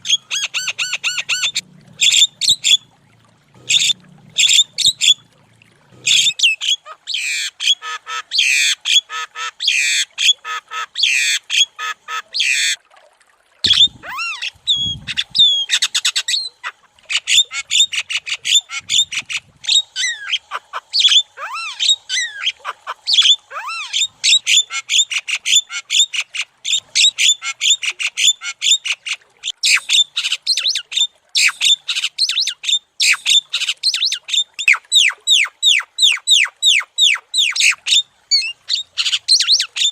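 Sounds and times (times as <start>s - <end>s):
bird chattering and squawking: 0.0s - 2.8s, 3.6s - 5.2s, 6.0s - 12.8s, 13.7s - 28.6s, 29.4s - 39.9s.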